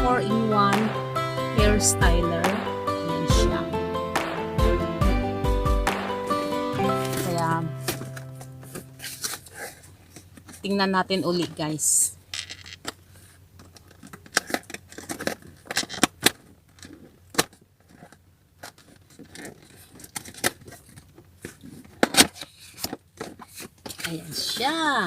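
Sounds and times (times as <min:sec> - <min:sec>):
packaging being handled: 0:06.8 - 0:10.7.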